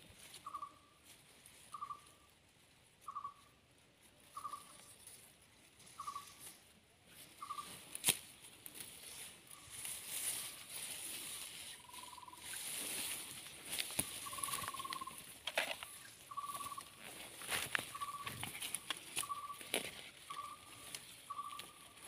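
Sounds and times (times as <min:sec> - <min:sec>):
bird calling: 0:00.4 - 0:01.0, 0:01.7 - 0:02.3, 0:03.0 - 0:03.6, 0:04.3 - 0:04.9, 0:05.9 - 0:06.6, 0:07.2 - 0:07.9, 0:09.1 - 0:22.0
sharp clicks in dry litter: 0:07.9 - 0:08.3, 0:17.6 - 0:21.7.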